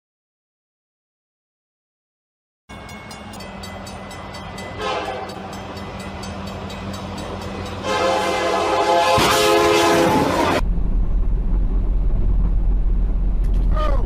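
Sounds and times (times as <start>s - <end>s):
train rumble: 2.7s - 14.0s
train horn blasts: 4.6s - 5.7s, 7.6s - 10.6s.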